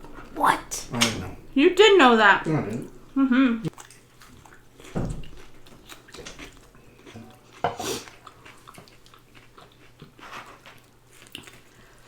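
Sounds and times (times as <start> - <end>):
chewing and biting: 3.7 - 12.0.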